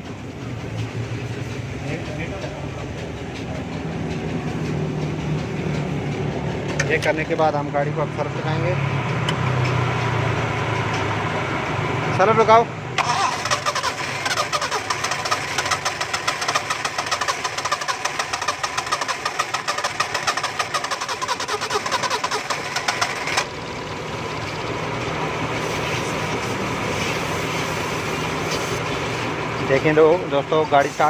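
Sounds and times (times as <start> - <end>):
car engine idling: 0.0 - 9.4, 10.0 - 31.0
car starter motor cranking: 13.0 - 23.6.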